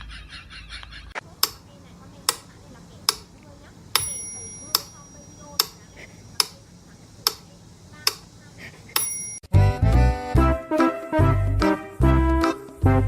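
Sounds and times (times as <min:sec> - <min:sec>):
sharp steady ticks: 0:01.4 - 0:06.6, 0:07.2 - 0:08.4
high ringing ping: 0:04.0 - 0:05.8, 0:09.0 - 0:09.5.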